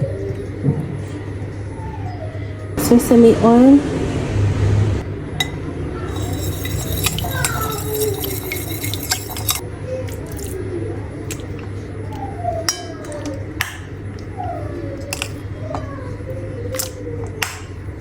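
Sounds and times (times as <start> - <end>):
glass bottles and utensils clinking: 5.4 - 9.6.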